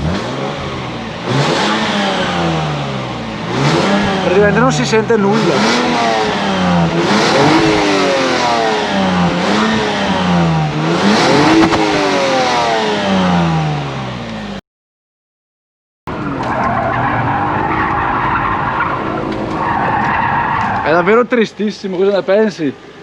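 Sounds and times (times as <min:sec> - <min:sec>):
car engine revving: 0:00.0 - 0:14.6.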